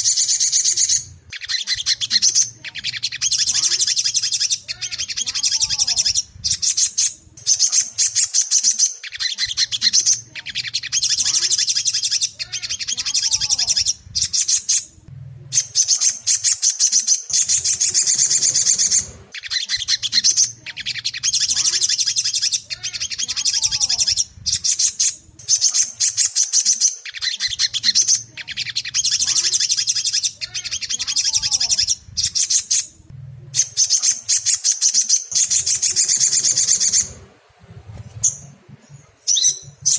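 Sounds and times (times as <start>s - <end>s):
sunbird twittering chirps: 0.0s - 33.0s, 33.6s - 39.9s
faint low hum: 9.4s - 26.4s, 27.3s - 39.9s.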